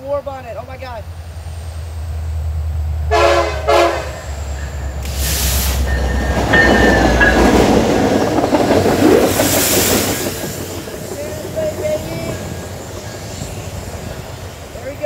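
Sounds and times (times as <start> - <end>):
locomotive engine rumble: 0.0 - 15.0
wheel noise on rails: 0.0 - 15.0
diesel locomotive horn blasts: 3.1 - 4.5.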